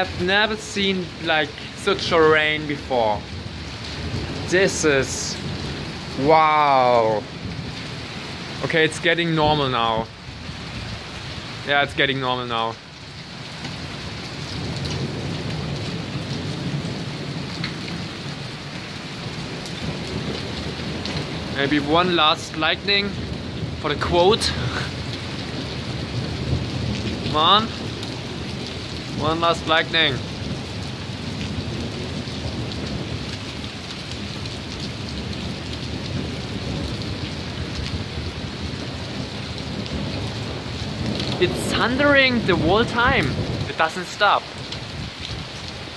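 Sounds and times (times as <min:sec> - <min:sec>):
heavy rain: 0:00.0 - 0:45.9
raindrops ticking: 0:00.0 - 0:45.9
thunder rumbling: 0:00.0 - 0:45.9.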